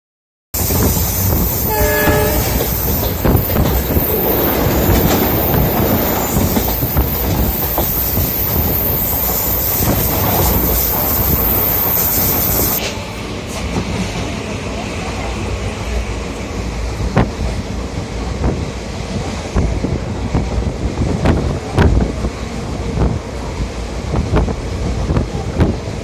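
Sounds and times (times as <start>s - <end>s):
train rumbling on rails: 0.6s - 26.0s
train horn blast: 1.2s - 3.1s
wheels clacking over track joints: 2.0s - 15.3s.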